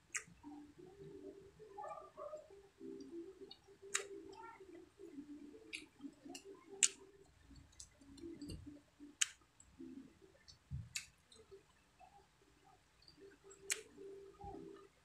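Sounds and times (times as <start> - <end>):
sharp smacking clicks: 3.9 - 4.4, 13.5 - 14.0.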